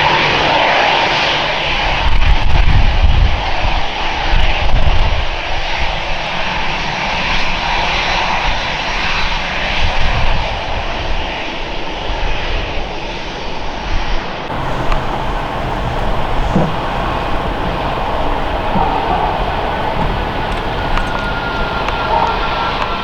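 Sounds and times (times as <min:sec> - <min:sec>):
airliner engines running: 0:14.5 - 0:23.0.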